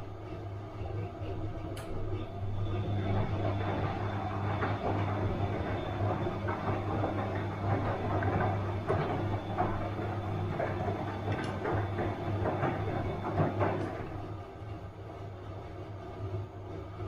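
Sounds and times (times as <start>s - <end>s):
washing machine motor hum: 0.0s - 17.0s
water sloshing in drum: 2.4s - 14.4s.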